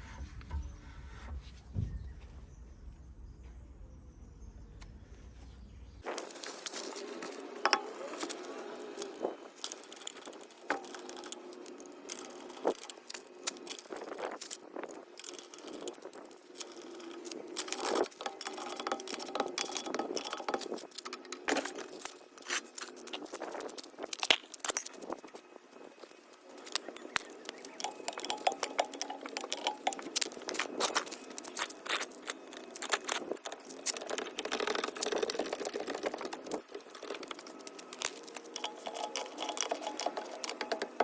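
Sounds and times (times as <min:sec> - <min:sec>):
metal tools clicking and clinking: 0:06.0 - 0:25.4, 0:26.0 - 0:41.0.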